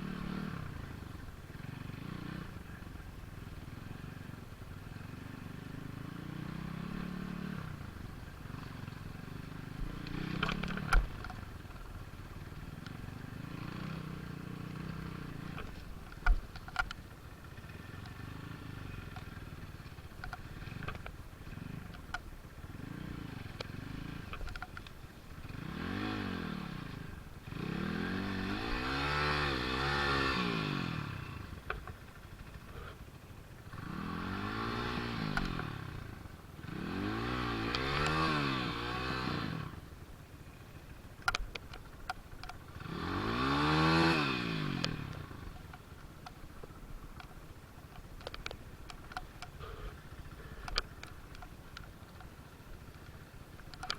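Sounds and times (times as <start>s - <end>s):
vehicle engine revving: 0.0s - 2.8s, 5.1s - 11.5s, 25.4s - 33.0s, 33.7s - 39.9s, 42.4s - 45.7s.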